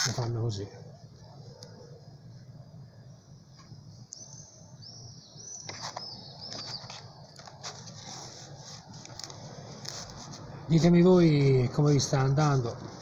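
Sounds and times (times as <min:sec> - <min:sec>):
bird chirping: 0:02.9 - 0:07.5.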